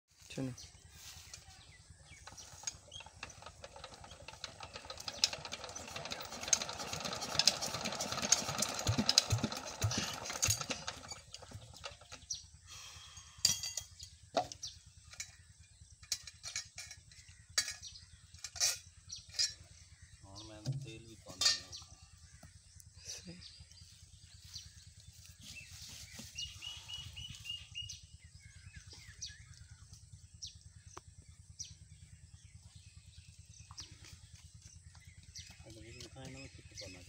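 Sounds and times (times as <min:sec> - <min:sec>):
engine cranking clatter: 0:02.1 - 0:12.6.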